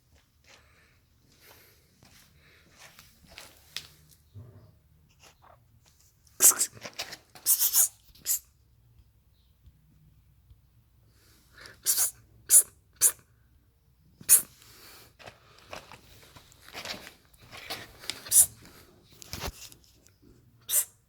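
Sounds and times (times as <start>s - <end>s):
short sharp hissy sounds: 6.4s - 6.8s, 7.4s - 8.5s, 11.6s - 13.2s, 14.2s - 14.8s, 18.2s - 18.6s, 20.6s - 21.0s.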